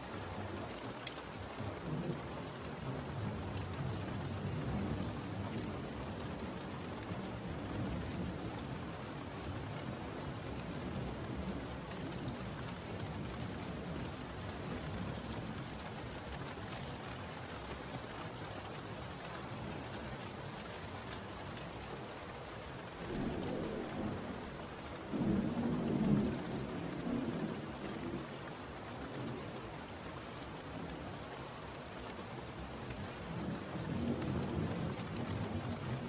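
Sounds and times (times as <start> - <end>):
steady rain: 0.0 - 36.0
thunder rumbling: 23.1 - 24.5, 25.1 - 28.2.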